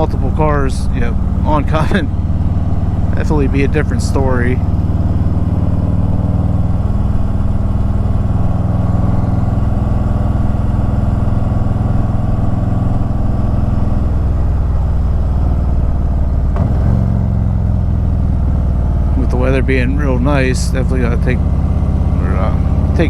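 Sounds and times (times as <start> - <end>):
motorcycle engine running: 0.0 - 23.0
road and wind noise: 0.0 - 23.0.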